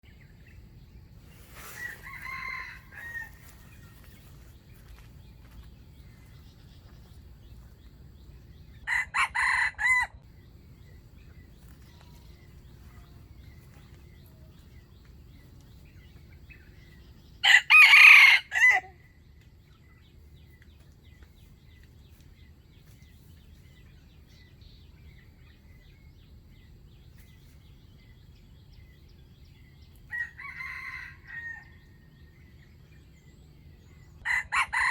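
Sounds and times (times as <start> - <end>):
rooster crowing: 1.6 - 3.7, 8.9 - 10.2, 17.4 - 18.9, 30.1 - 31.8, 34.2 - 34.9.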